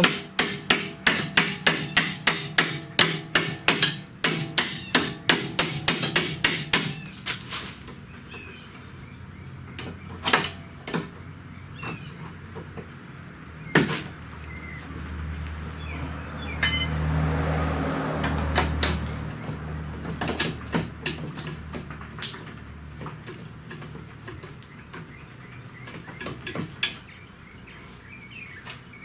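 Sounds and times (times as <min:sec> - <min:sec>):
hammer blows: 0:00.0 - 0:07.1, 0:15.9 - 0:19.4.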